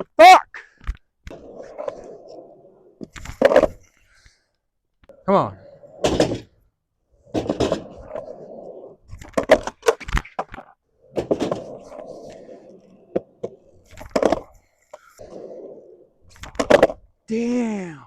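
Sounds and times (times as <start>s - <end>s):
skateboard wheels rolling on concrete: 1.1s - 17.3s
skateboard clacking: 7.3s - 8.6s, 9.2s - 15.2s, 16.3s - 17.0s.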